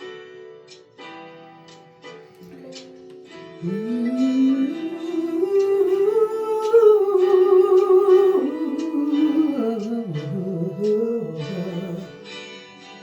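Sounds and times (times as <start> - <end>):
sparse acoustic guitar: 0.0 - 13.0
person humming wordless melody: 3.6 - 12.3.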